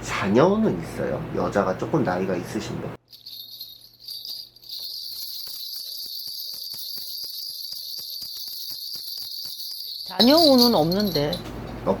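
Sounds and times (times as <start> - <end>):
small metal bells jingling: 3.0 - 12.0.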